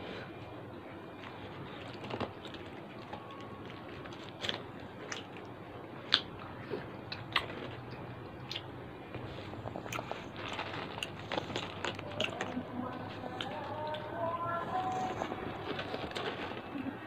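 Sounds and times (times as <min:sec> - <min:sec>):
person chewing crunchy food: 0:01.1 - 0:17.0.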